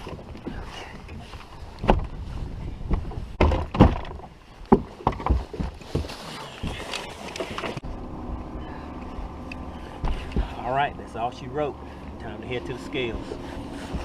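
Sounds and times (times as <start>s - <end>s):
knocks and thumps on boat: 0.0s - 7.8s, 10.0s - 10.7s, 13.2s - 14.0s.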